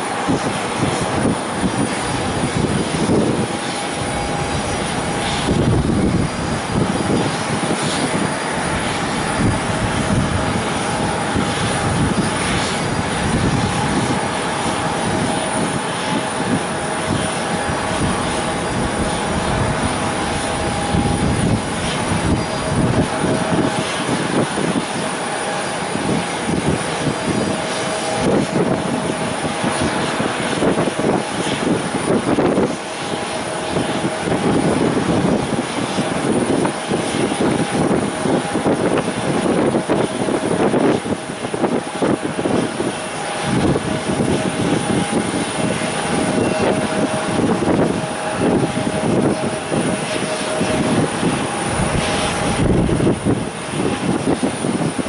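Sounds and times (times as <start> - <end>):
airplane engines whining: 0.0 - 55.0
wind buffeting microphone: 0.0 - 55.0.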